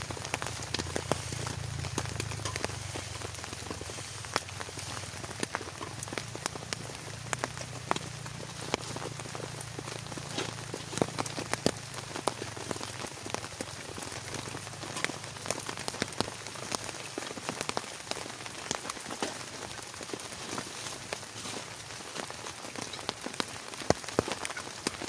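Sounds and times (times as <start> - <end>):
heavy rain falling: 0.0 - 25.0
raindrops ticking on surface: 0.0 - 25.0.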